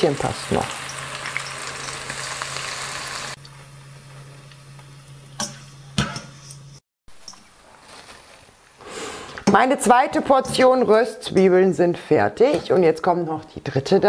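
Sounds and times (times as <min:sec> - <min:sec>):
deep-frying sizzle: 0:00.0 - 0:06.6.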